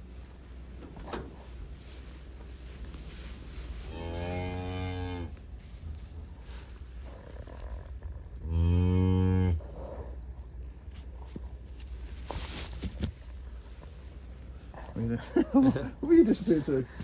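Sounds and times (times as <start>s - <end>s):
cow mooing: 3.9s - 5.3s, 8.4s - 9.6s.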